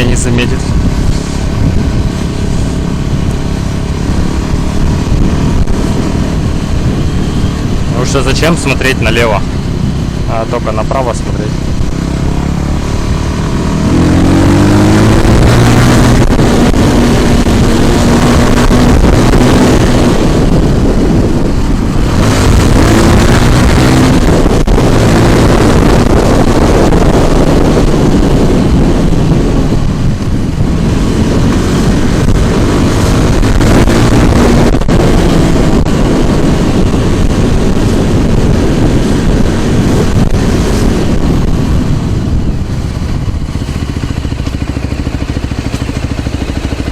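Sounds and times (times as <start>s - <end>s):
scooter engine accelerating: 0.0s - 46.9s
wind noise on microphone: 0.0s - 46.9s.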